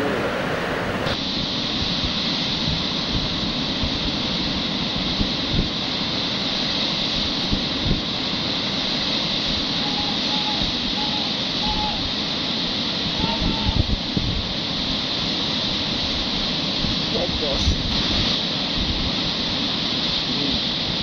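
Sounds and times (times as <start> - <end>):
fast-flowing river water: 0.0 - 1.2.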